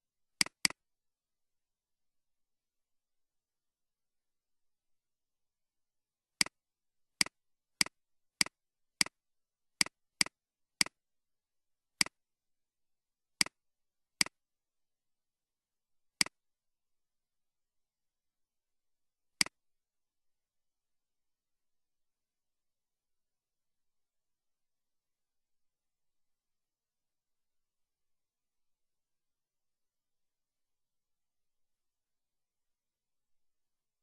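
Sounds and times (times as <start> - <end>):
computer mouse clicks: 0.4 - 0.8, 9.8 - 11.0, 12.0 - 12.2, 14.2 - 14.4, 16.2 - 16.4.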